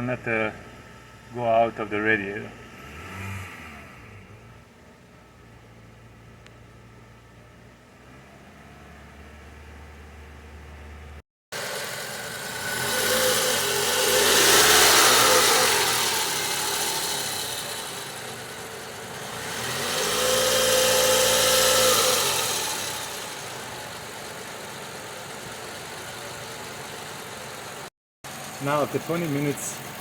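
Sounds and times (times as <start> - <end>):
car engine revving: 2.2 - 4.7, 7.9 - 27.4.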